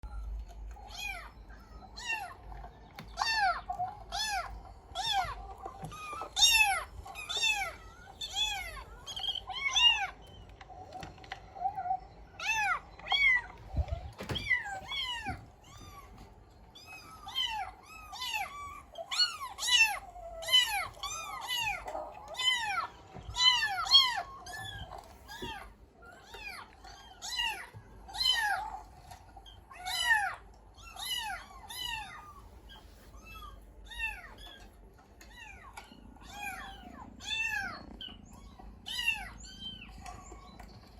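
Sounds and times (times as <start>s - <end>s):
cat meowing: 12.4s - 29.0s, 29.6s - 39.9s.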